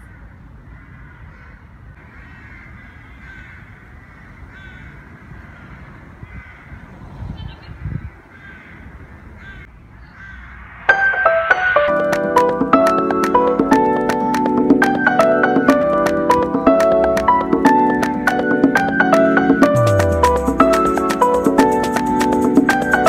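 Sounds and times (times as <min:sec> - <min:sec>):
birds calling: 0:00.0 - 0:10.8.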